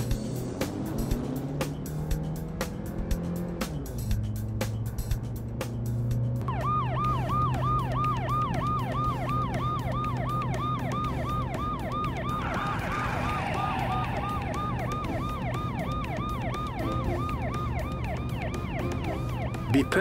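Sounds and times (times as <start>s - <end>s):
police siren yelping: 6.4s - 20.0s.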